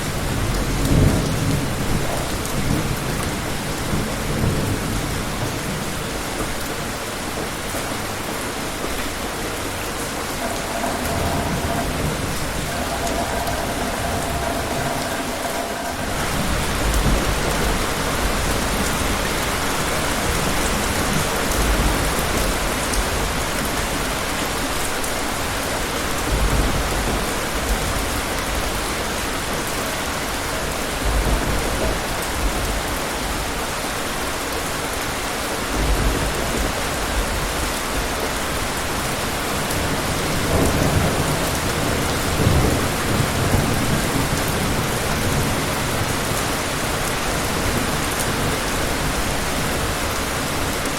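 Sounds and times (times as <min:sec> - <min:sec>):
heavy rain falling: 0:00.0 - 0:50.9
distant thunder rumbling: 0:09.2 - 0:24.0, 0:26.2 - 0:33.8, 0:35.6 - 0:50.8.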